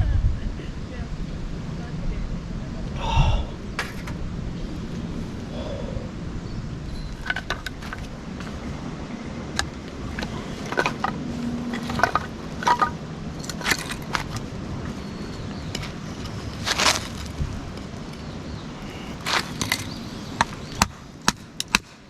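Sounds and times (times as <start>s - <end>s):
steady low rumble: 0.0s - 21.7s
clicks and clinks of gear: 9.6s - 18.3s.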